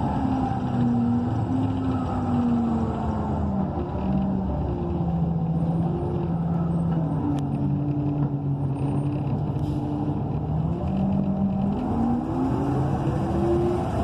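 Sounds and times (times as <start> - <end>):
bus engine droning: 0.0 - 14.0.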